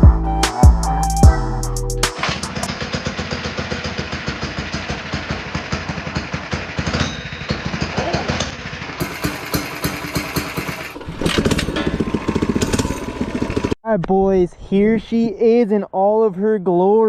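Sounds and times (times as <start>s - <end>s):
mini bike engine idling: 3.2s - 13.8s.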